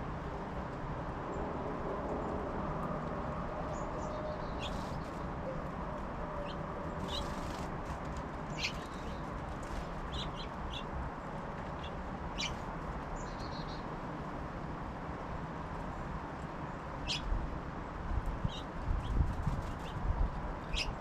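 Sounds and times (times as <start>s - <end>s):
songbirds chirping: 3.5s - 14.8s, 15.6s - 20.0s, 20.6s - 21.0s.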